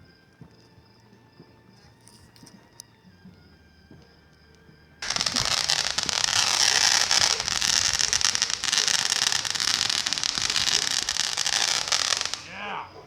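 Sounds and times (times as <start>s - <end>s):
firework crackling: 5.0s - 13.0s.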